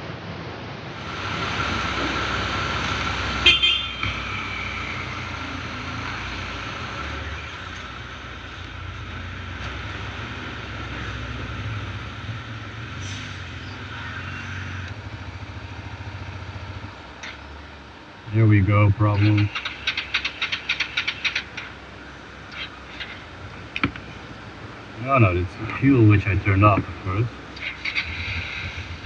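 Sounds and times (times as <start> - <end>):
steady high whine: 0.0 - 29.0
vehicle engines running: 0.0 - 29.0.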